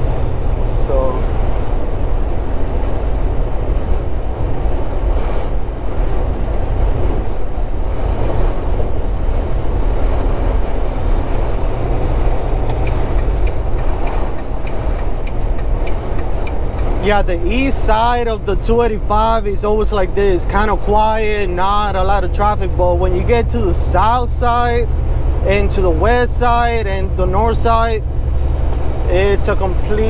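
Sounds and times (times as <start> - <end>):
truck engine drone and road noise: 0.0 - 30.0
faint ticks: 12.2 - 17.0.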